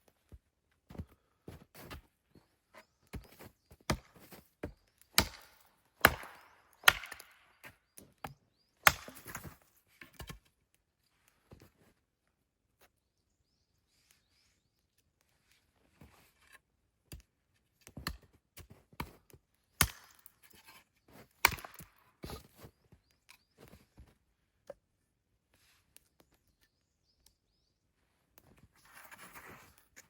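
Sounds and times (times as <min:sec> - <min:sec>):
wood being chopped: 0:03.1 - 0:09.6, 0:19.8 - 0:20.3, 0:21.4 - 0:22.4.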